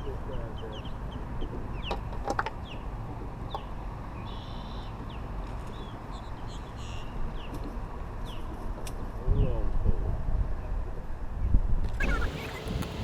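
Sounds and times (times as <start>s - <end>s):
birds chirping: 0.0s - 7.6s, 8.2s - 8.6s, 12.0s - 13.0s
harsh buzzy bird calls: 3.5s - 7.6s, 12.0s - 13.0s.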